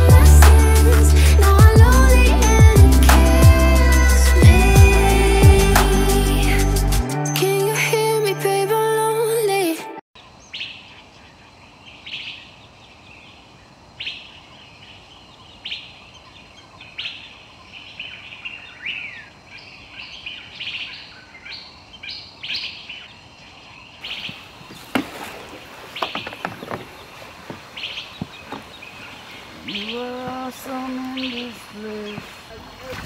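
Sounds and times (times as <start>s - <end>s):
other birds chirping: 10.2s - 33.0s.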